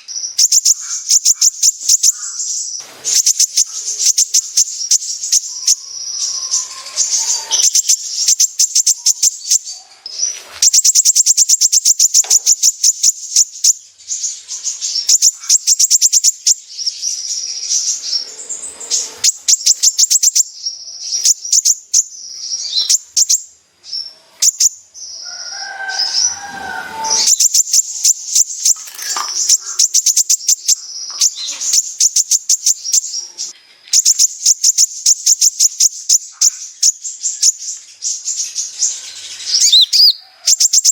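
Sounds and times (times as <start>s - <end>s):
bird singing fast trills: 0.0s - 9.8s, 10.6s - 40.9s
low rough bird call: 0.6s - 10.9s, 17.2s - 21.3s, 25.2s - 32.0s.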